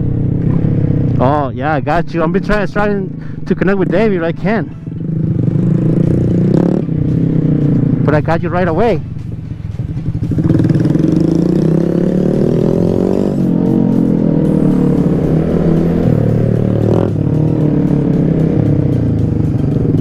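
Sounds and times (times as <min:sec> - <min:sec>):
small motorcycle engine accelerating: 0:10.2 - 0:20.0.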